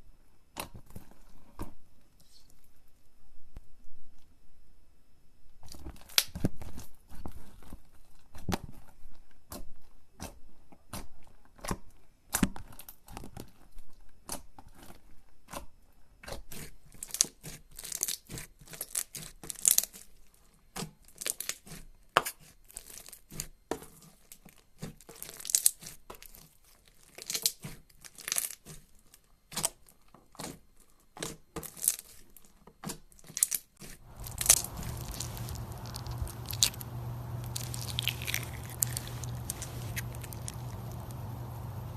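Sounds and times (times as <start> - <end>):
slime popping and crackling: 34.1 - 41.9.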